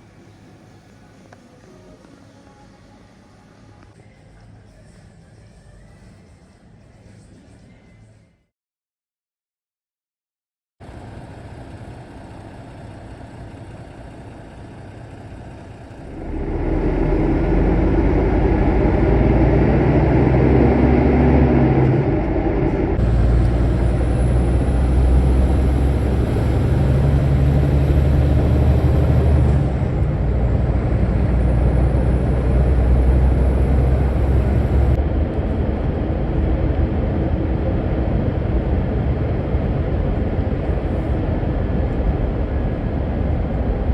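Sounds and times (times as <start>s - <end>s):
truck engine running: 10.8s - 43.9s
high whine: 15.8s - 43.9s.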